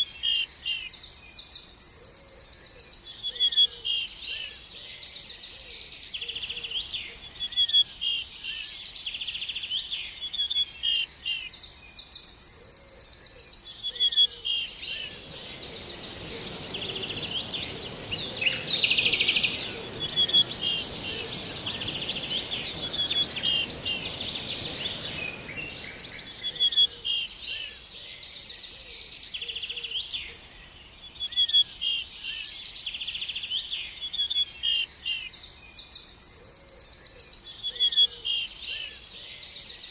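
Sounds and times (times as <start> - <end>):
birds chirping and singing: 14.6 - 27.2
steady high hiss: 14.6 - 27.3
low even noise: 14.7 - 27.2.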